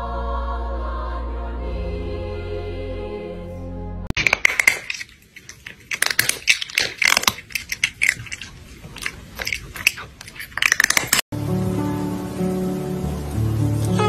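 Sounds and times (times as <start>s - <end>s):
crunching crisp snacks: 4.2s - 11.2s
music with held tones: 11.4s - 14.0s.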